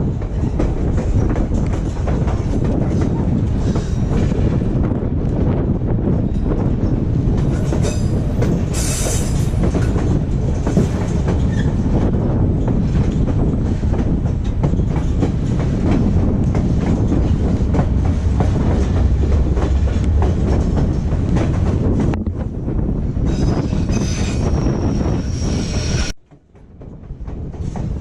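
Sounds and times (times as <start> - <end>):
train rumbling: 0.0 - 28.0
train wheels clicking on rails: 0.0 - 28.0.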